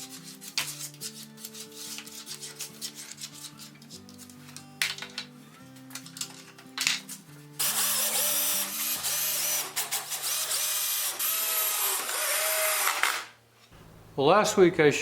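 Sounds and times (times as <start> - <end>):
background music: 0.0 - 10.1
electric drill whining under load: 7.6 - 13.3.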